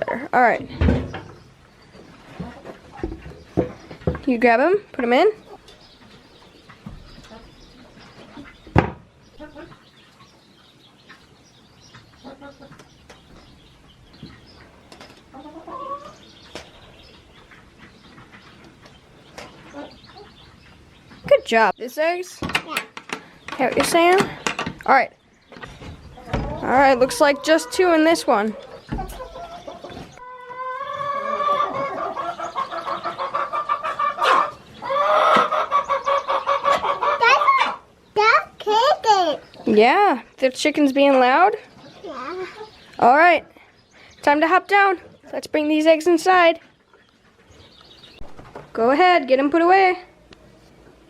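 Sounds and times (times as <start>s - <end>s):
hens calling: 0.0s - 22.3s, 23.1s - 51.0s
sharp knocks and clicks: 22.4s - 24.9s.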